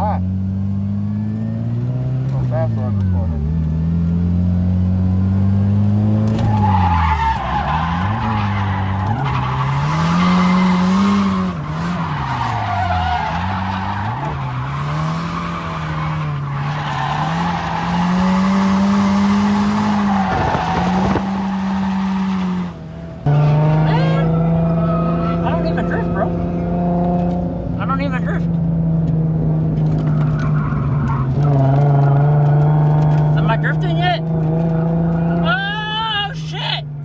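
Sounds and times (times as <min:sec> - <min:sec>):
car engine revving: 0:00.0 - 0:35.7
tyres squealing: 0:06.3 - 0:23.0.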